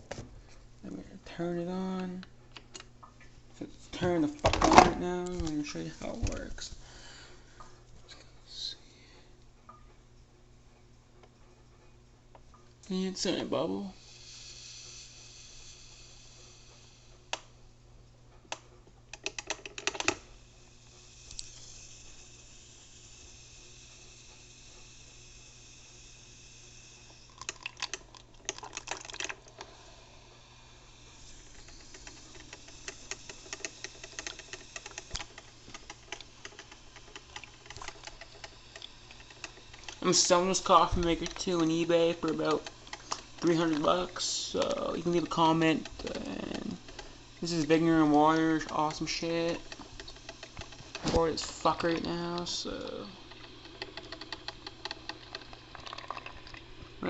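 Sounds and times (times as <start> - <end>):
coffee maker hissing: 3.4 - 7.8, 12.8 - 17.9, 19.1 - 57.0
low hum: 20.0 - 57.0.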